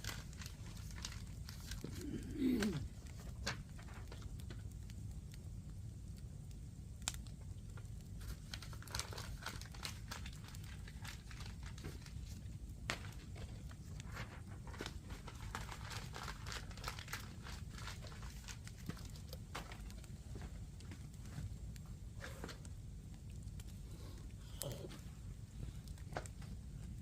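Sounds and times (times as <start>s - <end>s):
wood fire crackling: 0.0s - 27.0s
sharp fire pops: 6.5s - 23.7s.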